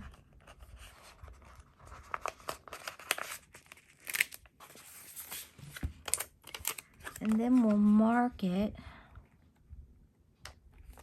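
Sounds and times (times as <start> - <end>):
paper rustling and clicking: 0.1 - 7.9
sharp paper crackle: 1.2 - 5.5.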